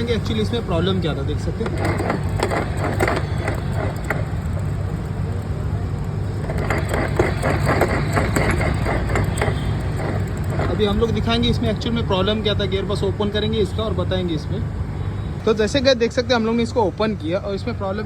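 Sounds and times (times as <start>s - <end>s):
gearbox clicking and clattering: 0.0s - 12.1s
scooter engine hum: 0.0s - 13.1s.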